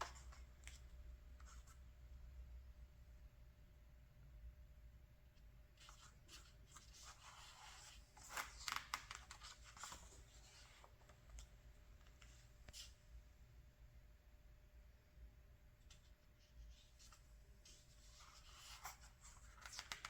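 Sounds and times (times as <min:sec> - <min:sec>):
paper page rustling: 0:16.8 - 0:20.0.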